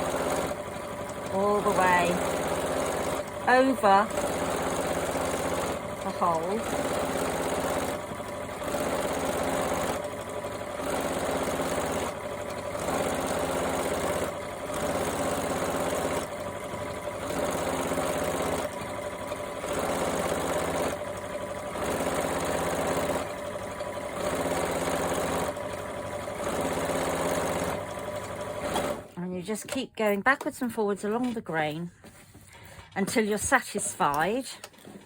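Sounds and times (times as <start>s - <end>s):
sewing machine stitching: 0.0s - 29.8s.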